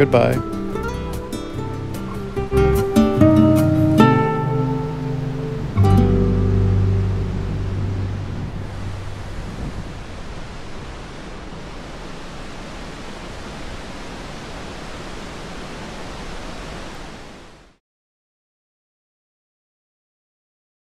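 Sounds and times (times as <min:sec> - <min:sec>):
waterfall rushing: 0:00.0 - 0:17.8.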